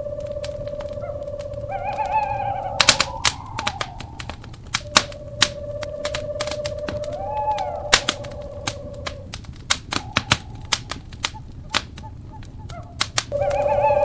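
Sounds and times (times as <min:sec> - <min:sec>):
owl hooting: 0:00.0 - 0:14.0
wood fire crackling: 0:00.0 - 0:14.0.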